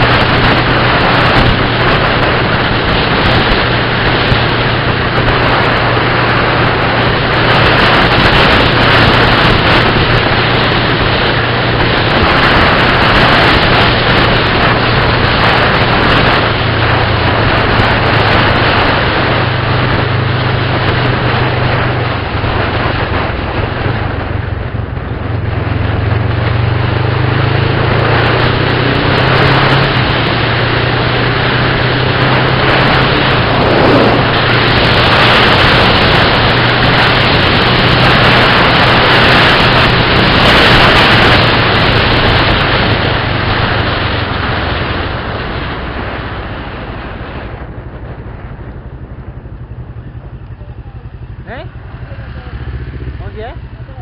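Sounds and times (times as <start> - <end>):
engine hum: 0.0 - 54.0
road noise: 0.0 - 54.0.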